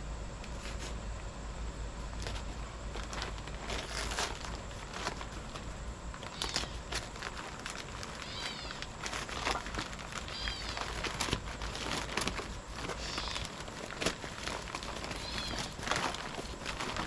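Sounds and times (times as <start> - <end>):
light clicks and crinkling: 2.2 - 17.0
cat mewing: 6.3 - 6.8, 8.1 - 8.9, 10.2 - 11.0, 13.0 - 13.6, 15.2 - 15.8.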